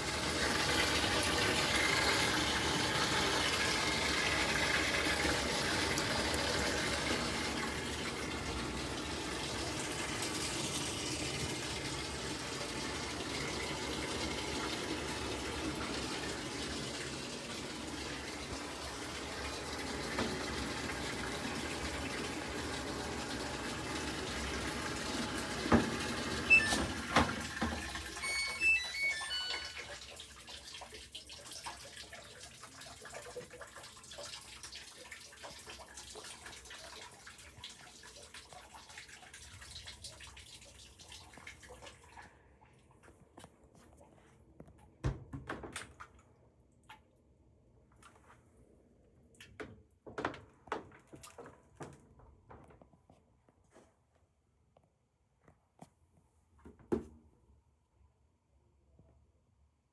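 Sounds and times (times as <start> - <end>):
water running into washer tub: 0.0 - 44.3
short high beeps: 28.2 - 30.0.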